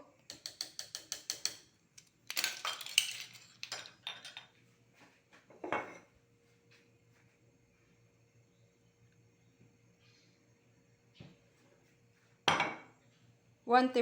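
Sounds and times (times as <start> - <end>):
metal spoon clinking cookware: 0.3 - 1.6, 2.3 - 4.5.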